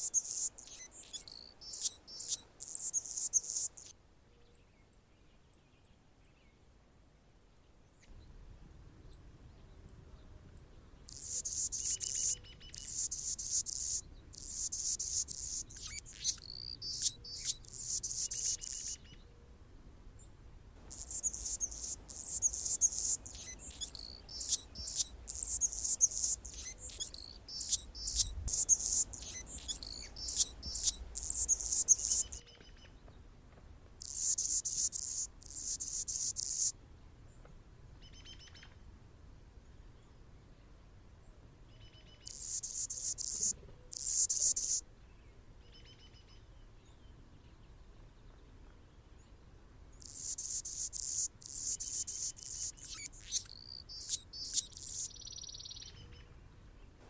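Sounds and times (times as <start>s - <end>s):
hummingbird singing buzzy phrases: 0.0s - 3.9s, 11.1s - 19.0s, 20.8s - 32.4s, 34.0s - 36.8s, 42.3s - 44.8s, 50.0s - 56.0s.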